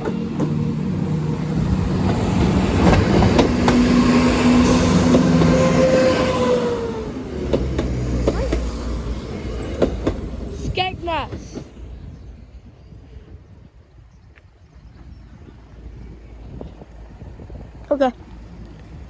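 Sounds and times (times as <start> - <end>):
diesel train engine: 0.0 - 19.0
train wheels clicking over rail joints: 1.7 - 5.6, 7.4 - 8.9.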